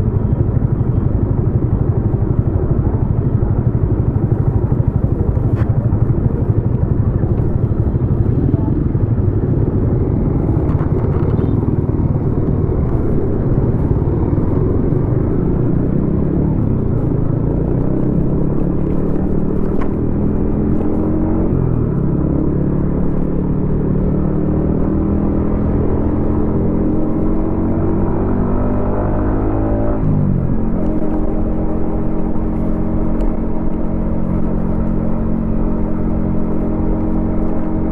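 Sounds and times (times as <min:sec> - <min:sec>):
motorcycle engine rumble: 0:00.0 - 0:37.9.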